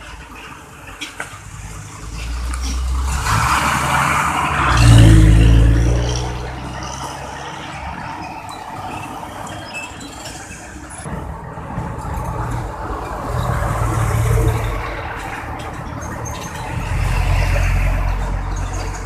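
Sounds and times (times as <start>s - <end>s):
road traffic noise: 0.0s - 19.0s
truck driving past: 1.6s - 9.6s.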